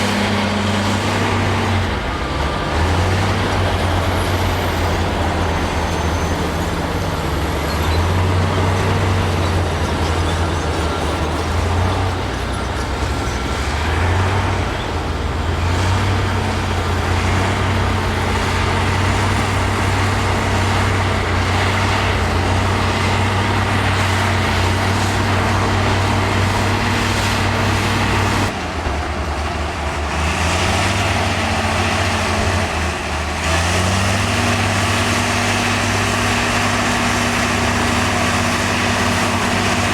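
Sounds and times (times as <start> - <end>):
heavy diesel engine revving: 0.0 - 39.9.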